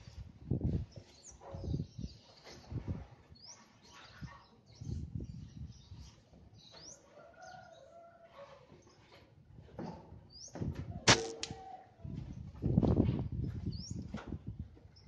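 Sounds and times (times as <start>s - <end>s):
low wind rumble on microphone: 0.0s - 3.5s, 4.2s - 6.2s, 9.5s - 15.0s.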